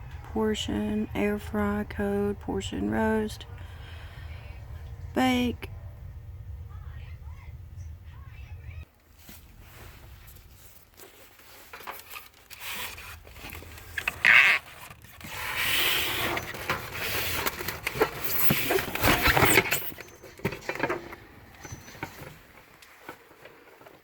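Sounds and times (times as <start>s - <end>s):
packaging rubbing and rustling: 9.2s - 21.1s.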